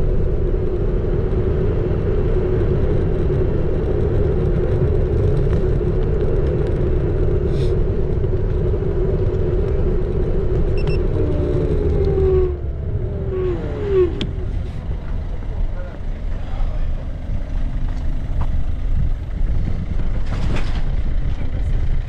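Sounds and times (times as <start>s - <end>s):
wind and road noise: 0.0s - 22.0s
motor whine falling in pitch: 10.6s - 14.6s.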